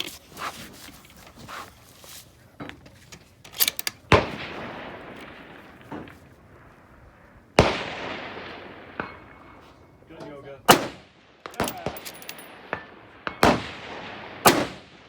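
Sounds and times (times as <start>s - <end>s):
rifle shots with echo: 3.8s - 15.0s.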